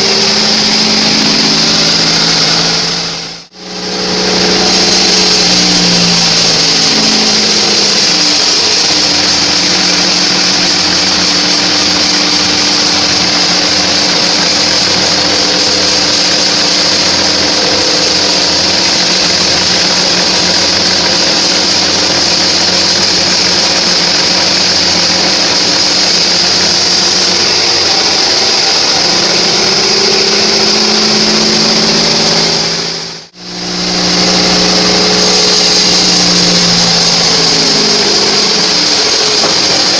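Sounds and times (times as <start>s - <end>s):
bandsaw blade hissing in wood: 0.0s - 32.9s, 33.8s - 39.9s
engine running: 0.0s - 39.9s.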